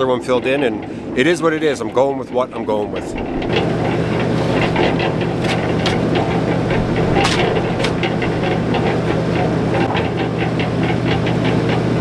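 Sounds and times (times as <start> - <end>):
concrete mixer engine hum: 2.8 - 12.0
cement tumbling in drum: 3.4 - 9.9.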